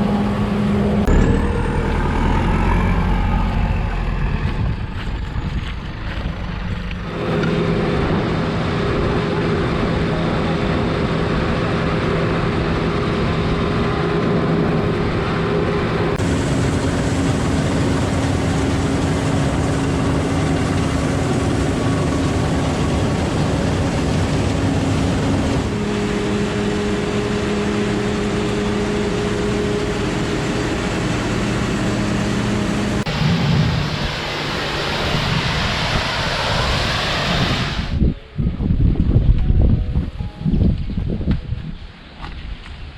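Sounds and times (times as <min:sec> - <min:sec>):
farm machinery engine drone: 0:00.0 - 0:40.9.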